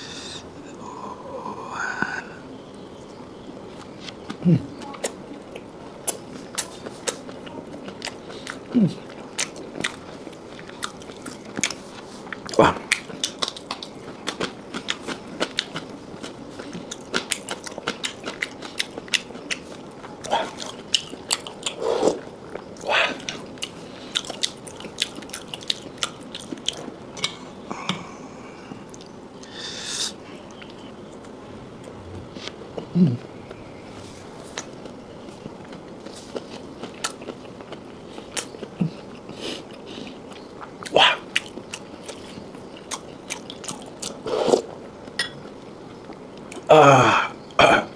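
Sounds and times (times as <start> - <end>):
wet chewing clicks and smacks: 4.2 - 27.4, 34.6 - 44.2
short vocal sound: 32.9 - 33.3.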